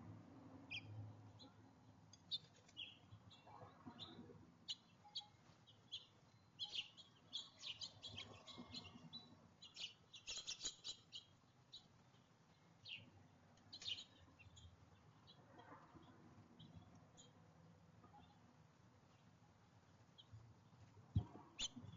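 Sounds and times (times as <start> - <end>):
songbirds chirping: 0.4 - 21.9.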